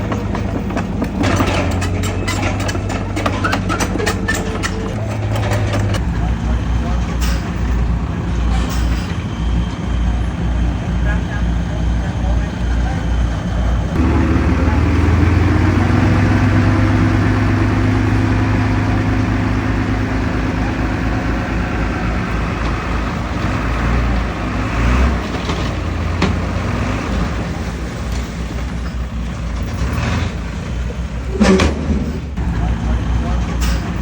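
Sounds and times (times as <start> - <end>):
short metallic knocks: 0.0 - 6.0
heavy diesel engine running: 0.0 - 34.0.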